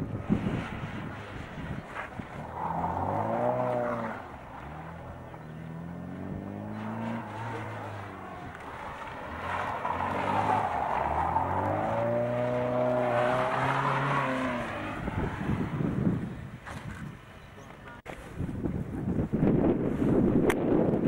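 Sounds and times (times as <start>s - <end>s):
car engine revving: 0.2s - 17.0s.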